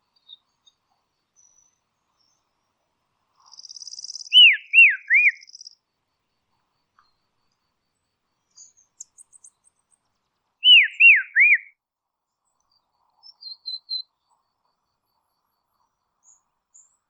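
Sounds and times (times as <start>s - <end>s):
faint high bird chips: 3.4s - 5.8s
bird whistling swooping notes: 4.1s - 5.5s, 10.6s - 11.7s
soft high bird notes: 10.6s - 11.7s.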